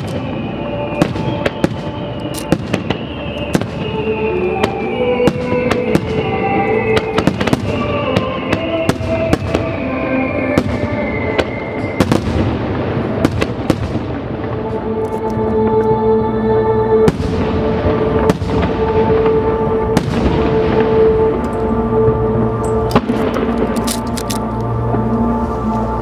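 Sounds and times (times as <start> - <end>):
fireworks bangs and crackles: 0.0 - 14.9, 17.0 - 21.5, 22.9 - 24.1
music playing: 0.0 - 26.0.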